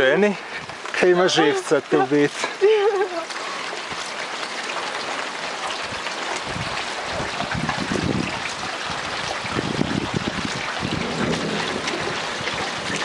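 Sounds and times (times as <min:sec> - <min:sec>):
rain hissing: 0:00.0 - 0:13.0
wind buffeting microphone: 0:05.8 - 0:13.0.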